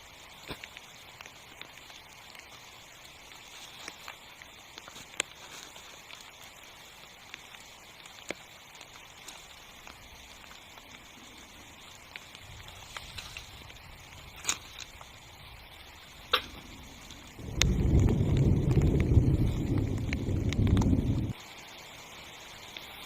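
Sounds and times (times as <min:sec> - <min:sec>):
rain falling on a tent: 0:00.0 - 0:23.0
faint low rumble: 0:16.5 - 0:21.4.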